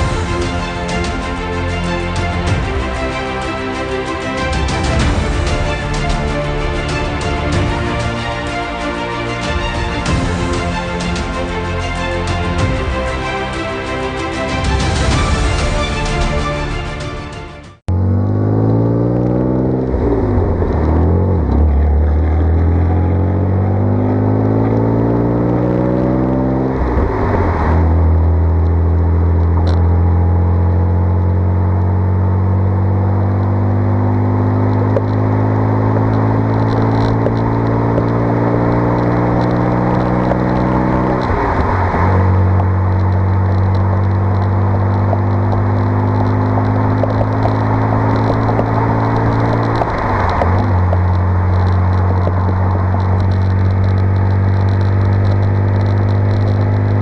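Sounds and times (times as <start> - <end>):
car engine accelerating hard: 17.9 - 57.0.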